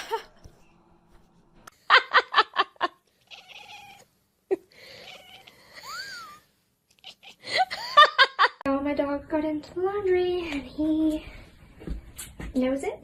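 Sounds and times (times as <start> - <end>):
cat meowing: 3.2 - 4.1, 4.9 - 5.5.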